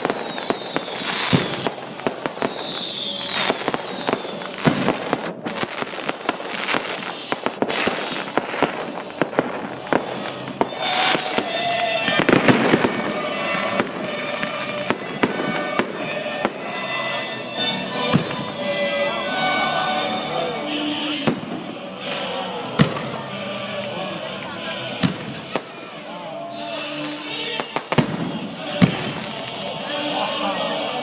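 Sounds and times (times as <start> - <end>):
firework whistle falling in pitch: 0.0 - 5.7, 6.9 - 23.2
fireworks bangs and crackling: 0.0 - 31.0.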